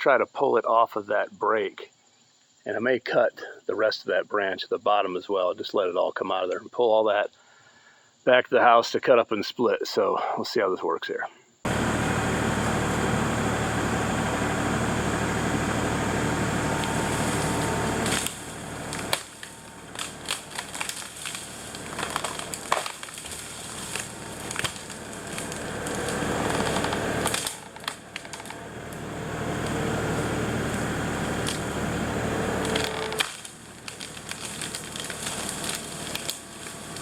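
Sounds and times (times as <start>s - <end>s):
tractor engine running under load: 11.7s - 37.0s
tree dragging through branches: 11.7s - 37.0s
wood cracking and snapping: 16.1s - 37.0s.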